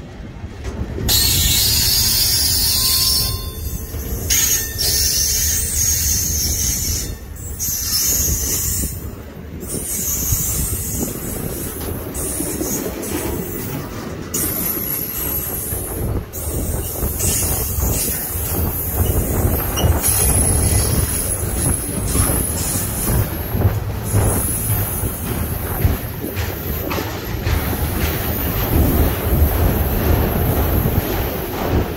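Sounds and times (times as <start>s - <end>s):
train wheels rumbling on rails: 0.0s - 31.9s
high wheel squeal: 1.1s - 11.2s.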